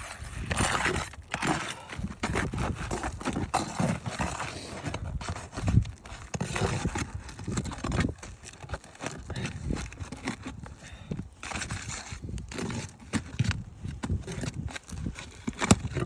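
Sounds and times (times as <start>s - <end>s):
footsteps on shingled roof: 0.0s - 16.0s.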